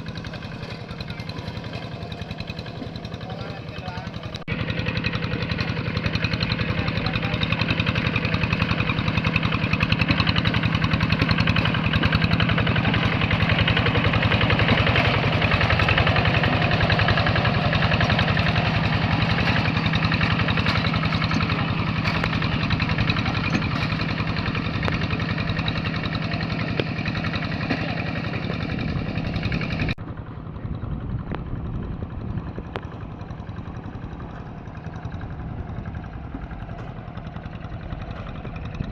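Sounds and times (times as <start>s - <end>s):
tractor engine chugging: 0.0s - 38.9s.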